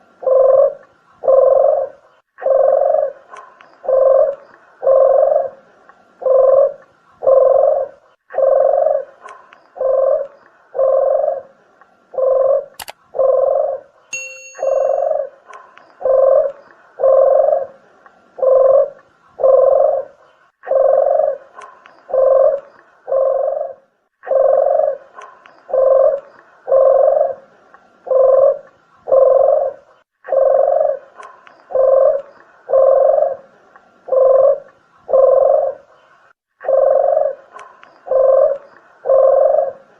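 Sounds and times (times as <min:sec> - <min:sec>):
dove cooing: 0:00.0 - 0:13.9, 0:14.7 - 0:35.9, 0:36.6 - 0:39.9
click: 0:12.8 - 0:13.0.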